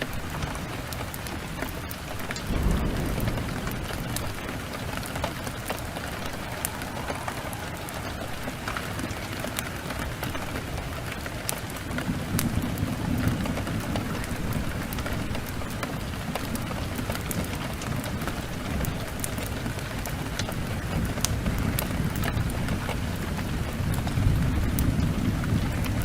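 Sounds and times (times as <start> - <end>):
sharp crackles: 0.0 - 19.5
heavy rain falling: 0.0 - 26.0
deep rumble: 2.5 - 10.4.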